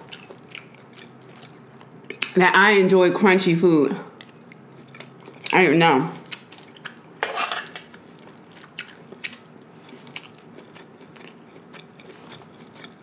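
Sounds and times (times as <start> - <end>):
chewing food: 0.0 - 2.4, 4.2 - 5.6, 6.2 - 7.2, 7.8 - 13.0.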